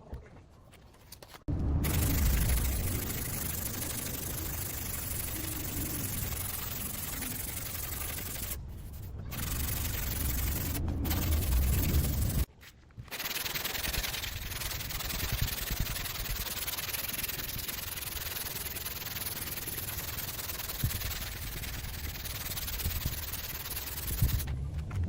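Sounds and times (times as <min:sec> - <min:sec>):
steady scraping: 0:01.1 - 0:25.0.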